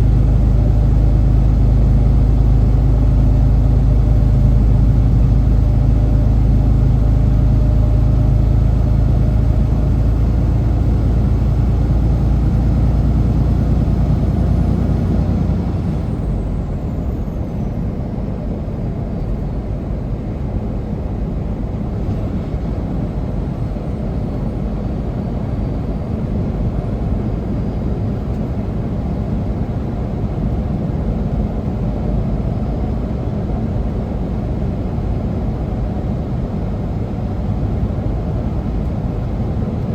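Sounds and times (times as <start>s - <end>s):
truck engine running: 0.0s - 19.1s.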